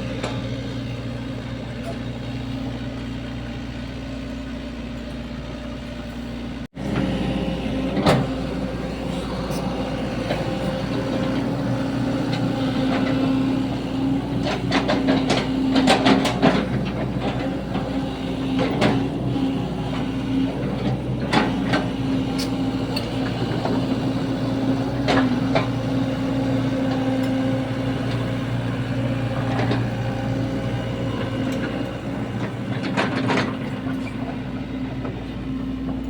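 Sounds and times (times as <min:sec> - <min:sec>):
diesel engine running: 0:00.0 - 0:36.0
digging knocks and clatter: 0:07.8 - 0:35.1.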